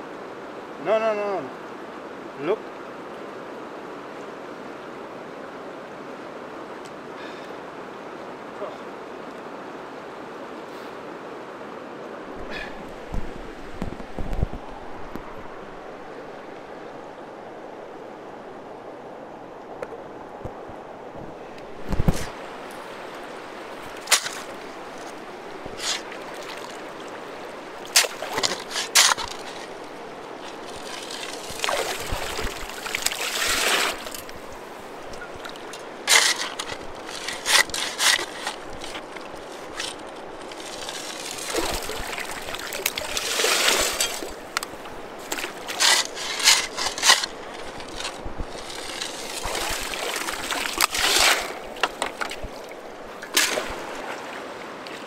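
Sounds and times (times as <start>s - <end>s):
river rushing: 14.6s - 55.0s.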